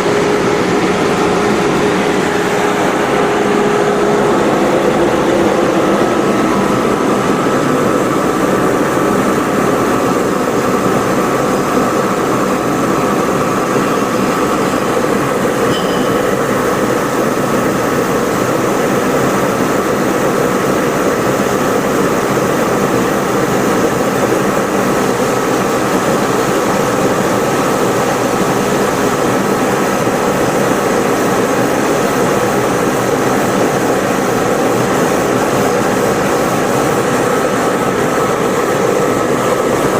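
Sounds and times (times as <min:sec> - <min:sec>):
grinder machine running: 0:00.0 - 0:30.4.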